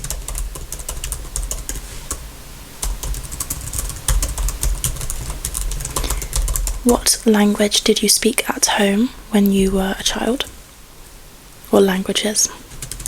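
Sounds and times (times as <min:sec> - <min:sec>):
typing on computer keyboard: 0:00.0 - 0:01.8, 0:02.8 - 0:06.8, 0:12.7 - 0:13.0.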